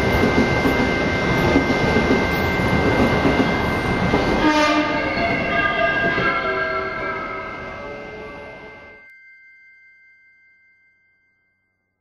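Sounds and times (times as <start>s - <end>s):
electric train running past: 0.0s - 9.0s
constant high whine: 0.0s - 9.2s.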